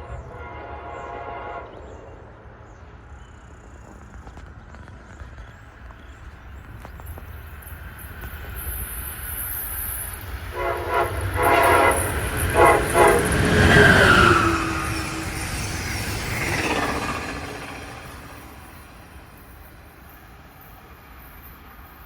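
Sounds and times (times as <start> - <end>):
train low rumble: 0.0 - 22.0
steam locomotive whistle blasts: 10.5 - 15.5.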